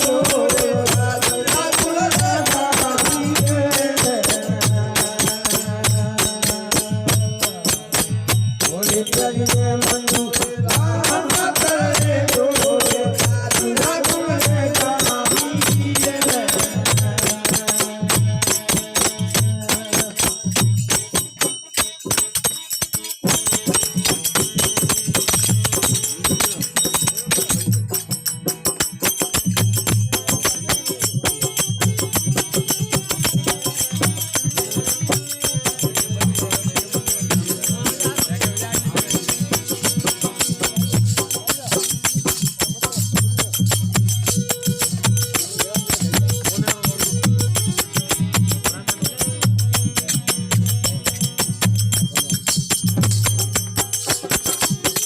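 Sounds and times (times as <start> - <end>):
low drum beat: 0.0 - 21.5
jingling hand percussion: 0.0 - 55.0.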